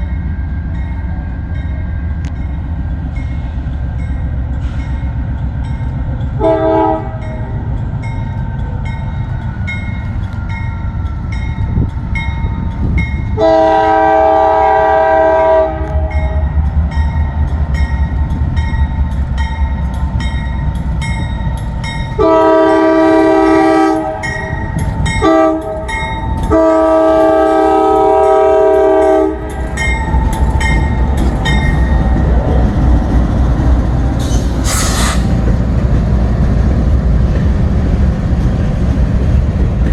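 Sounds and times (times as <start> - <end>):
freight train rumbling: 0.0 - 39.9
locomotive air horn: 6.4 - 7.4, 13.4 - 16.4, 22.2 - 24.5, 25.2 - 29.5.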